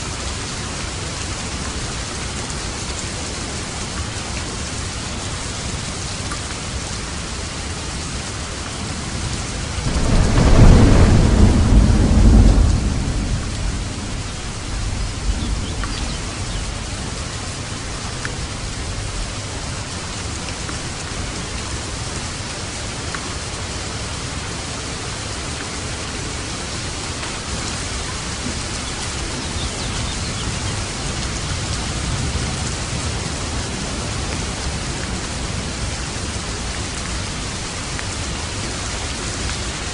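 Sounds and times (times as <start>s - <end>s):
heavy rain: 0.0s - 39.9s
thunder rumbling: 9.6s - 17.3s.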